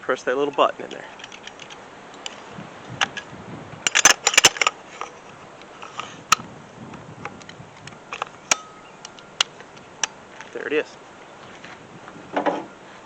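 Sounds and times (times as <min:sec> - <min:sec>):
plastic guard clicks and clacks: 0:03.9 - 0:04.8.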